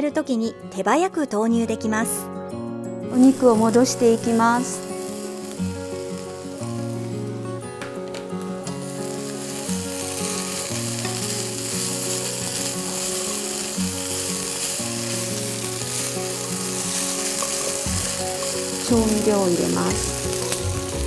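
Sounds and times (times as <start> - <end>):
soft background music: 0.0 - 21.0
meat sizzling in a frying pan: 3.2 - 7.4, 8.7 - 21.0.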